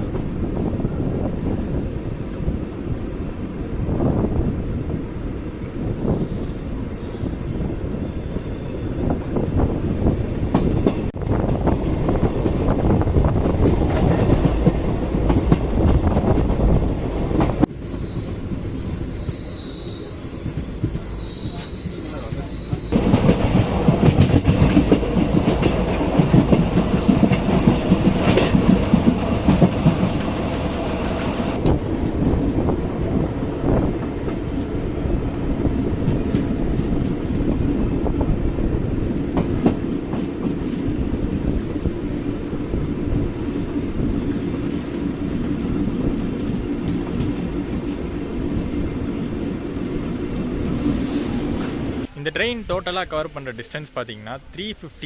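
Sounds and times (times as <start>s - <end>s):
train coaches rumbling: 0.0s - 55.0s
wheels clacking over rail joints: 20.4s - 32.5s.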